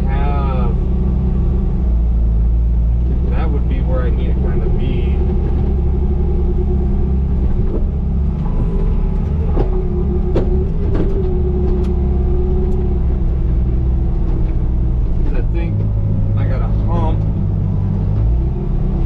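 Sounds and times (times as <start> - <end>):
diesel loader engine running: 0.0 - 19.0
steady whine: 3.3 - 18.2.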